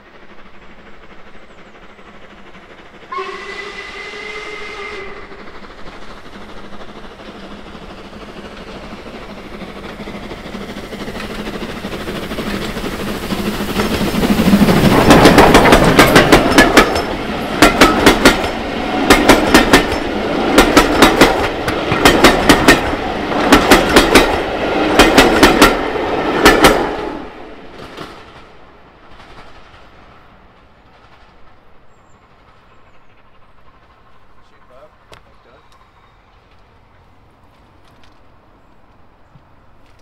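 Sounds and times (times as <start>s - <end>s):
train wheels clattering over rail joints: 4.7s - 27.0s.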